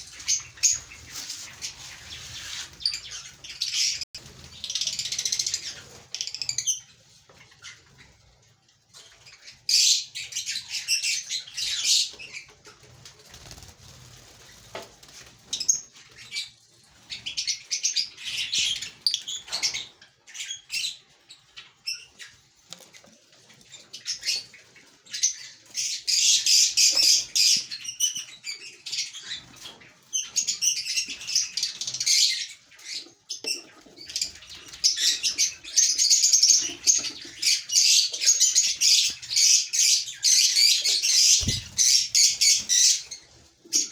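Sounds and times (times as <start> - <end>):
lovebirds chattering: 30.2 - 43.9.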